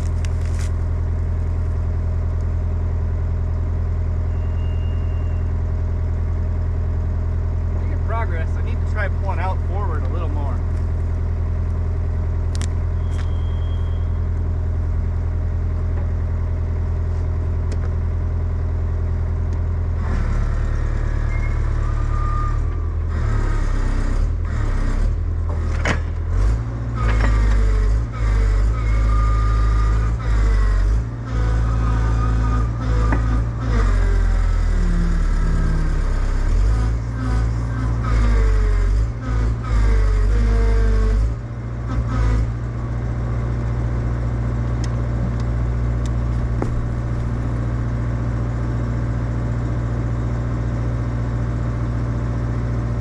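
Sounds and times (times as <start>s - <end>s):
diesel engine running: 0.0s - 53.0s
whining hydraulics: 4.2s - 5.7s, 12.6s - 14.5s, 19.9s - 44.0s.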